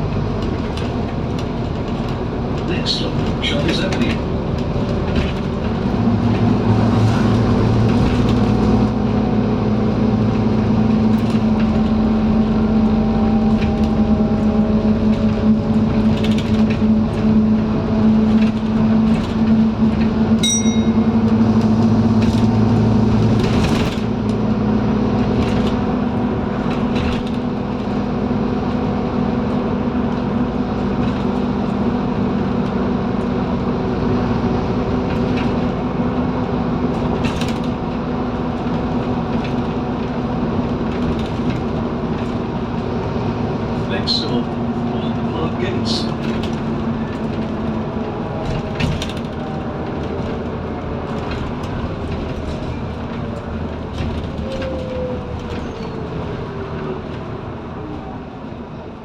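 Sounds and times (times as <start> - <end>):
interior rattles and knocks: 0.0 - 9.4, 10.3 - 57.3
bus diesel engine droning: 0.0 - 59.0
bus chime: 20.4 - 21.7.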